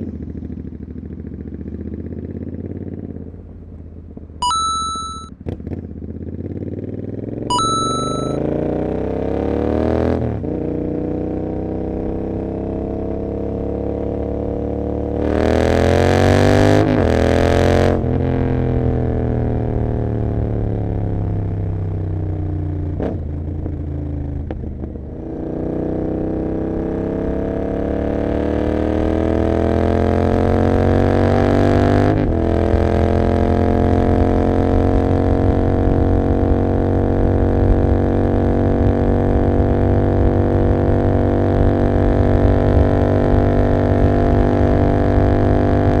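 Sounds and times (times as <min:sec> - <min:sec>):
motorcycle engine revving: 0:23.0 - 0:46.0.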